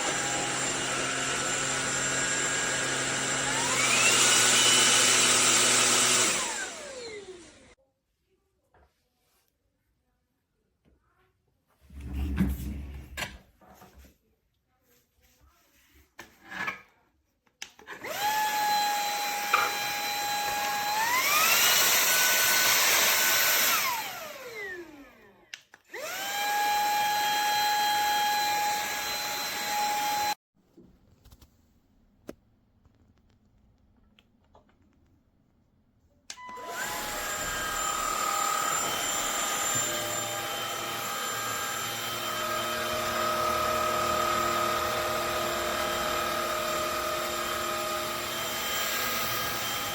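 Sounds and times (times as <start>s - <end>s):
stick vacuum motor whining: 0.0s - 7.8s, 17.9s - 30.4s, 36.3s - 49.9s.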